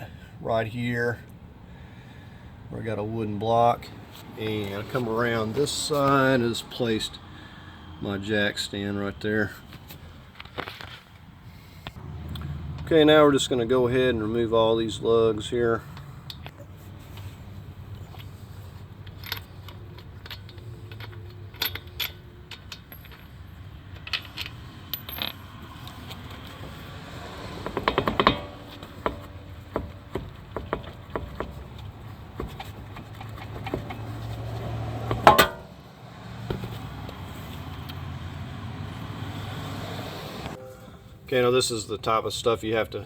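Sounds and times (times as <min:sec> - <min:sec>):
metal bolts clinking: 0:17.9 - 0:26.9, 0:27.6 - 0:35.9.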